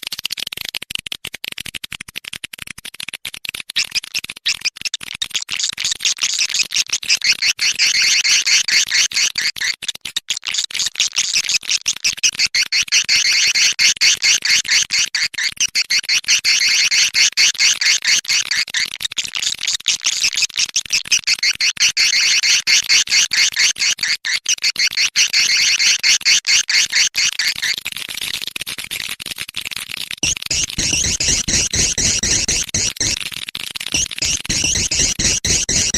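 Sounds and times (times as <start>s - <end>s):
swiftlet high chittering trills: 30.2s - 33.2s, 34.0s - 35.9s.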